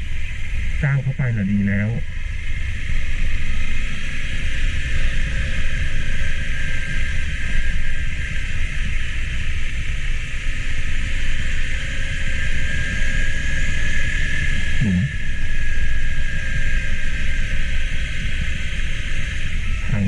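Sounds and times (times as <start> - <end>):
rushing noise: 13.4 - 20.0.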